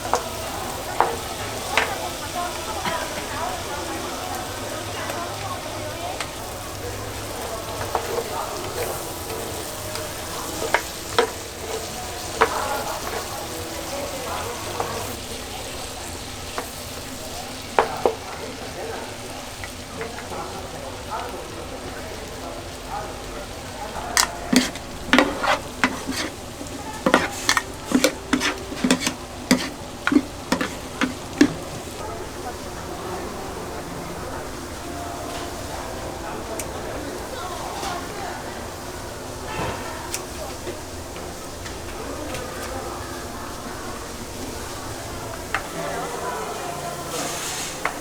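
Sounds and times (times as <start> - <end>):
gizzards sizzling in a pan: 0.0 - 48.0
metal spatulas scraping pan: 7.8 - 15.2, 24.2 - 31.8.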